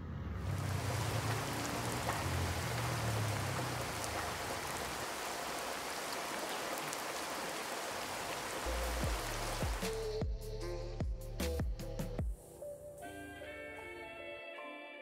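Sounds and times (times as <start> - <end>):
rain falling: 0.4 - 10.2.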